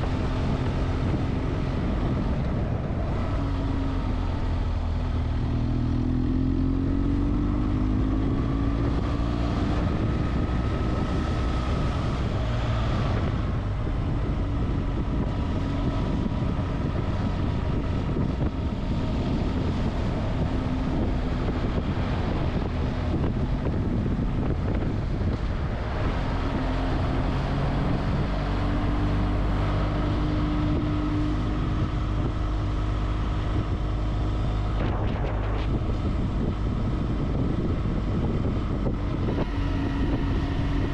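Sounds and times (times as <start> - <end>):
motorcycle engine running: 0.0 - 40.9
wind noise on microphone: 0.0 - 40.9.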